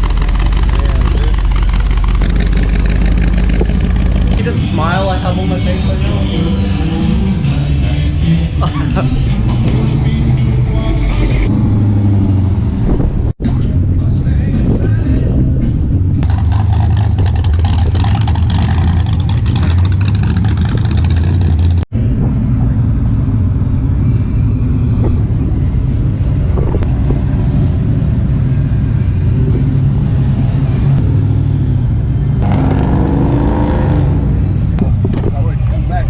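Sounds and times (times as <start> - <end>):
car engine rumbling: 0.0 - 36.0
road noise: 0.0 - 36.0.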